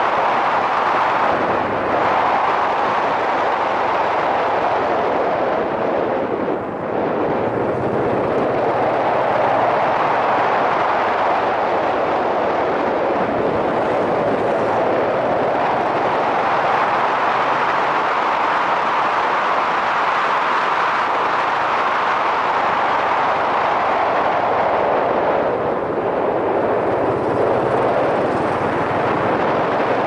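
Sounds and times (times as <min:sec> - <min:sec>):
wind rushing over microphone: 0:00.0 - 0:30.0
motorcycle engine running: 0:26.6 - 0:29.4.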